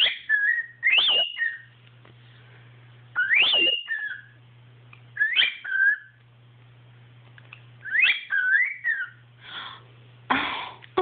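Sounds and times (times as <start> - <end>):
cockatiel whistling: 0.0 - 1.7, 3.2 - 4.4, 5.2 - 6.2, 7.8 - 9.2
boy whistling: 3.2 - 4.0.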